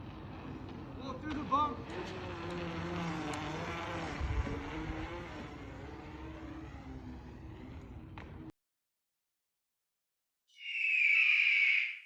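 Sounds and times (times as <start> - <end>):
car engine humming: 1.9 - 8.5.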